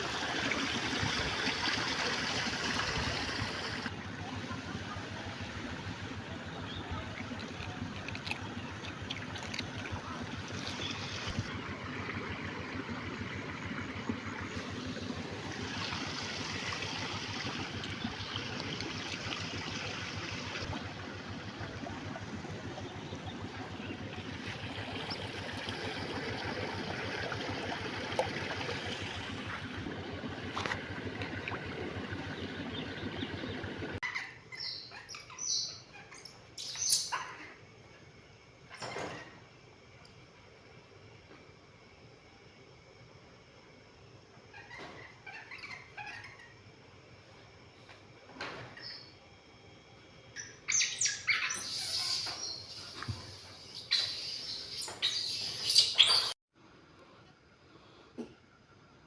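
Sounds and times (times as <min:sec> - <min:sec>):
water trickling and splashing: 0:00.0 - 0:03.9, 0:04.8 - 0:34.0.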